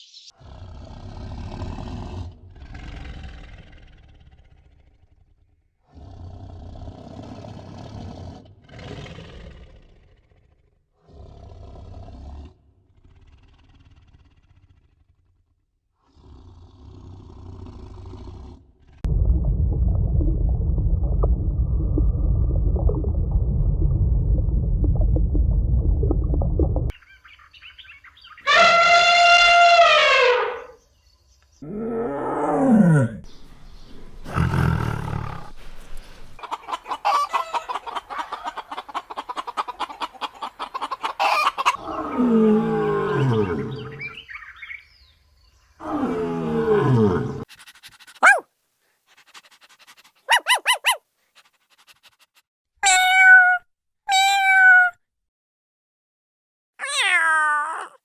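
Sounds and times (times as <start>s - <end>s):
animal calls: 26.9s - 30.8s, 36.4s - 44.9s, 47.4s - 48.4s, 49.2s - 52.2s
long pitched animal cries: 28.4s - 30.8s, 52.8s - 55.0s, 56.8s - 58.0s.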